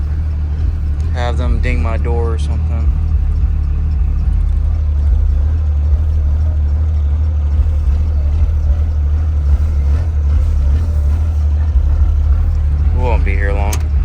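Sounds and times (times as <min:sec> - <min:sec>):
vehicle engine rumble from cabin: 0:00.0 - 0:14.0.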